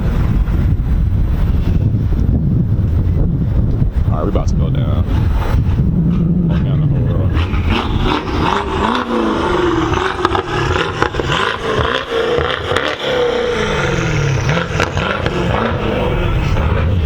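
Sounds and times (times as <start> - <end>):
car engine revving: 4.7 - 17.0.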